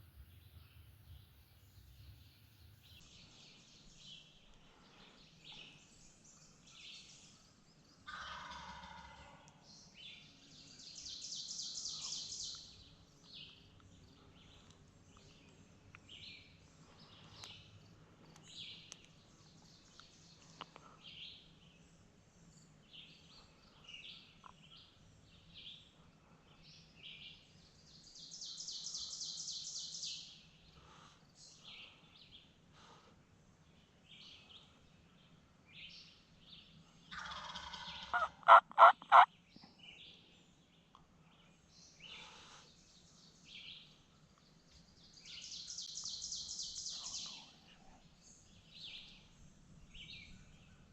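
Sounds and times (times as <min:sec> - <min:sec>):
songbirds calling: 0:00.0 - 0:50.9
turkey gobbling: 0:37.2 - 0:39.3.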